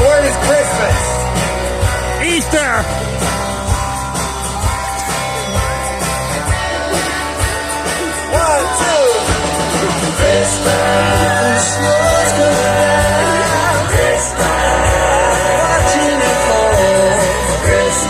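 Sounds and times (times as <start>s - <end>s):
live band playing: 0.0s - 18.0s
steady drum beat: 0.0s - 18.0s
singer's sliding vocal: 9.8s - 18.0s.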